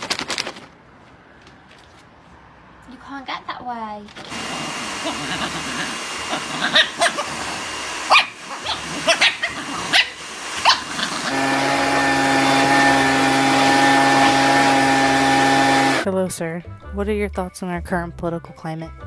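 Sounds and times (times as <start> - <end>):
dog barking: 4.6 - 11.4.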